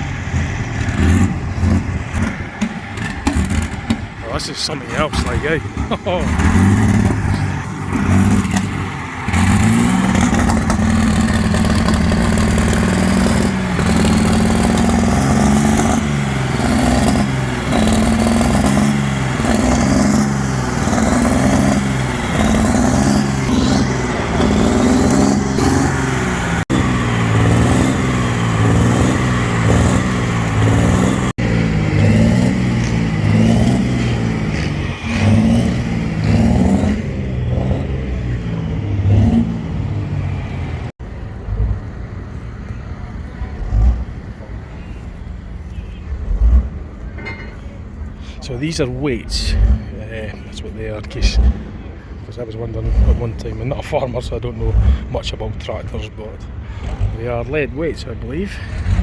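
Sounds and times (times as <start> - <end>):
tractor engine revving: 0.0 - 59.0.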